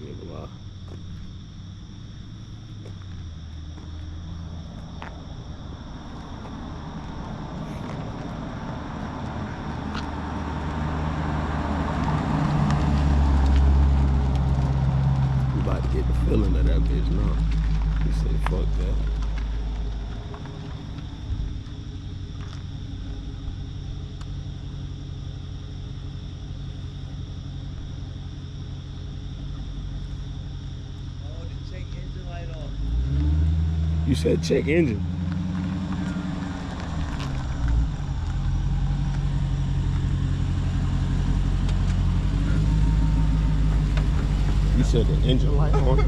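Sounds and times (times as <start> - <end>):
car engine droning: 0.0 - 46.0.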